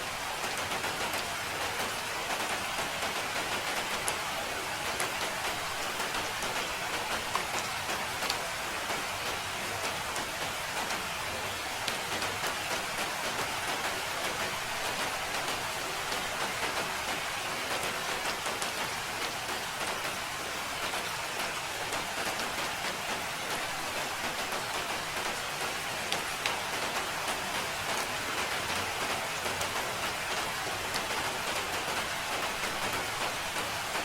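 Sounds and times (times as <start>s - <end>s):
steady rain falling: 0.0s - 34.0s.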